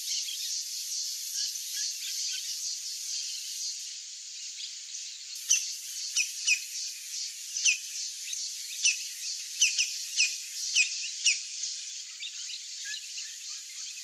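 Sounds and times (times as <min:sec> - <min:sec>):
steady high hiss: 0:00.0 - 0:14.0
bird chirps: 0:05.4 - 0:14.0.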